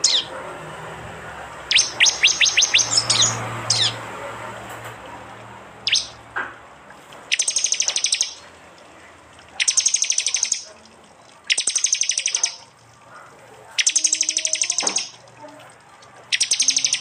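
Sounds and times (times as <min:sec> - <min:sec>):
bird trilling sharp high chips: 0:00.0 - 0:00.3, 0:01.6 - 0:04.0, 0:05.8 - 0:06.2, 0:07.3 - 0:08.5, 0:09.4 - 0:12.8, 0:13.8 - 0:17.0
falling whistled bird notes: 0:01.7 - 0:04.0, 0:05.8 - 0:06.2, 0:07.3 - 0:08.5, 0:11.5 - 0:12.7, 0:16.3 - 0:17.0.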